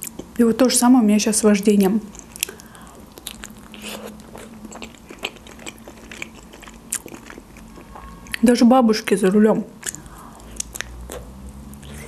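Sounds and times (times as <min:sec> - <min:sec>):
person biting and chewing dumpling: 0:00.0 - 0:00.4, 0:02.1 - 0:08.4, 0:09.8 - 0:12.0.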